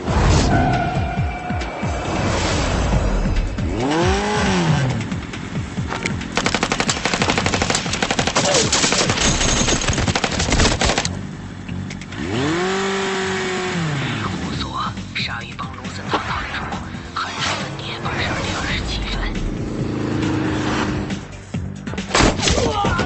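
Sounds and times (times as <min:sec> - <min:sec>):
vehicle engine revving: 0:00.6 - 0:07.5, 0:10.5 - 0:21.8
rapid automatic gunfire: 0:06.3 - 0:11.2.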